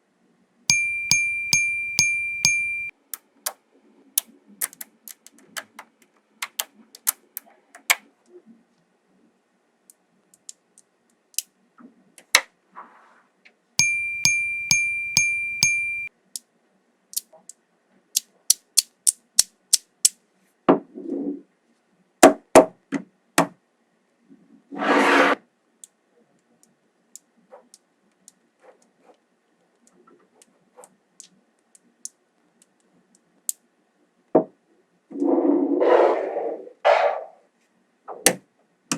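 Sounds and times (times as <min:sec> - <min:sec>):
magnetic balls clicking together: 0:00.7 - 0:03.2, 0:04.6 - 0:08.0, 0:13.8 - 0:16.1.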